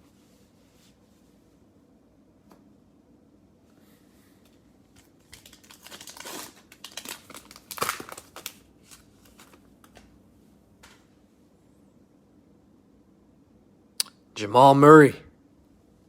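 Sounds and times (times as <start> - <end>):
wrapper tearing and crinkling: 5.0 - 9.6.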